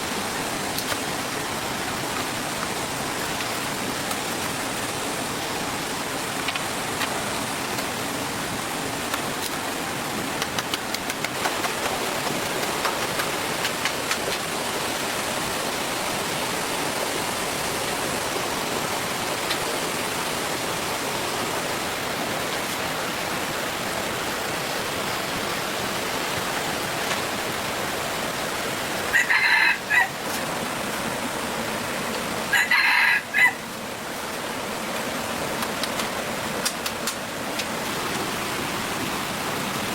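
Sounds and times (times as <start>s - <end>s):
steady rushing hiss: 0.0s - 29.2s, 33.2s - 39.9s
rooster crowing: 29.1s - 30.2s, 32.5s - 33.6s.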